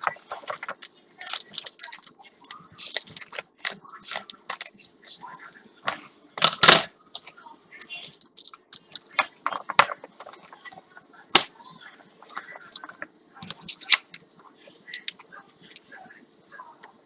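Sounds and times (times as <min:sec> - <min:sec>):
plastic and paper packaging crinkling: 0:00.0 - 0:04.8, 0:06.6 - 0:10.8, 0:12.2 - 0:14.2.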